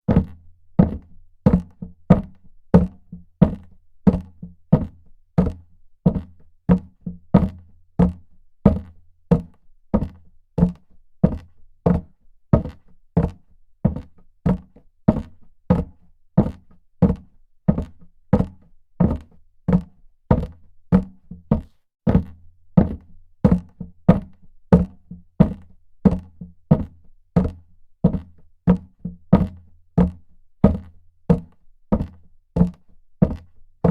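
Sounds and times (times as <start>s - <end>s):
footsteps on hard floor: 21.0s - 22.3s.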